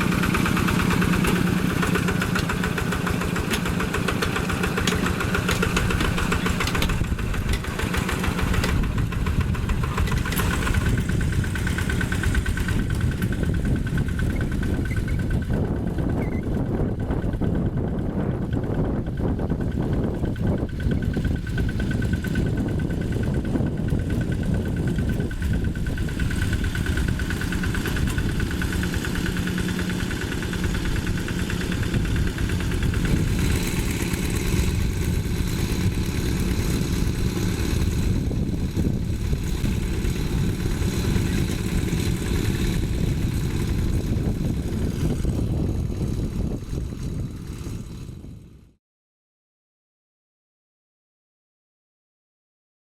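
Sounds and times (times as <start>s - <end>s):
diesel engine running: 0.0s - 48.7s.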